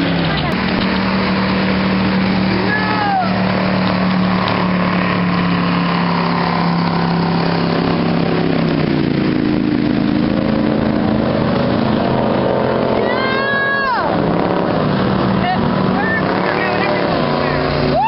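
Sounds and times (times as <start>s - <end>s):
motorboat engine running: 0.0s - 18.0s.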